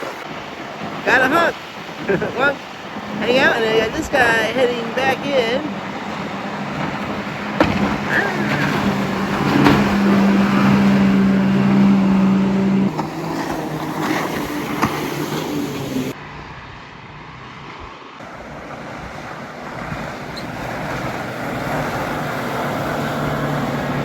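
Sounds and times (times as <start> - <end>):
boat engines droning: 0.0 - 24.0.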